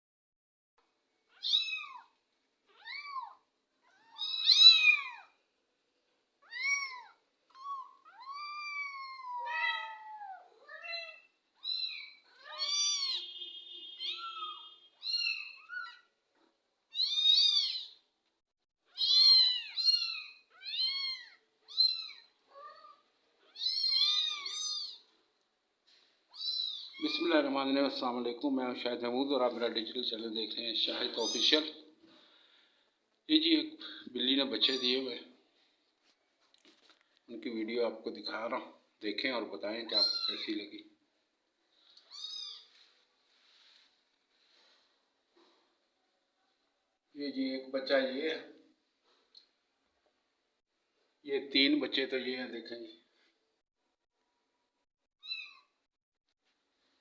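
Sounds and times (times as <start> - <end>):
kittens mewing: 2.7 - 5.3, 6.4 - 16.0, 18.9 - 25.1.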